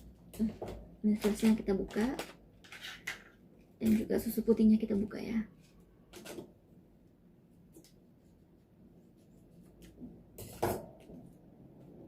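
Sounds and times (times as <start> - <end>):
container clicks and rustles: 1.1 - 4.3
plastic crackle: 1.1 - 4.4.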